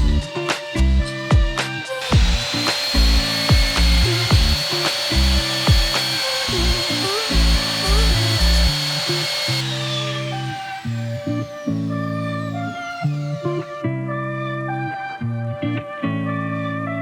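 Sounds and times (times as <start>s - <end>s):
background music with deep beat: 0.0s - 2.4s
power tool high whine: 1.8s - 14.0s.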